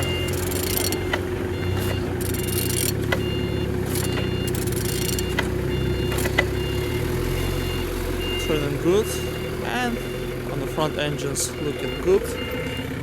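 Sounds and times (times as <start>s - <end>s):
sharp clicks: 0.0s - 3.3s, 3.9s - 6.6s
short high beeps: 0.0s - 6.8s.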